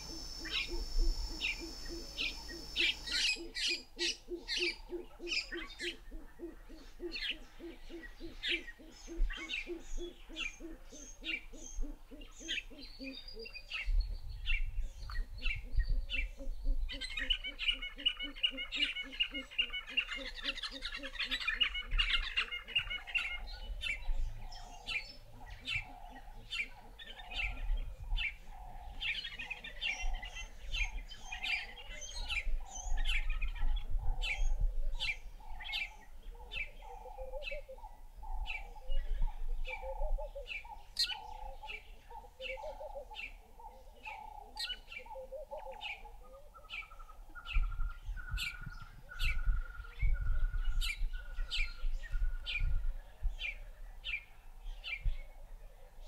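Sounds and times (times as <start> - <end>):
sharp high bird chirps: 0.0 - 3.4.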